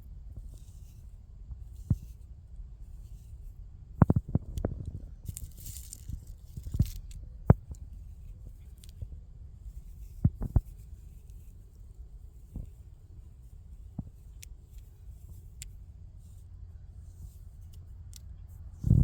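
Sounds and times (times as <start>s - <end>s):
seed ball crackling: 4.1s - 7.9s
seeds rustling: 4.2s - 9.0s.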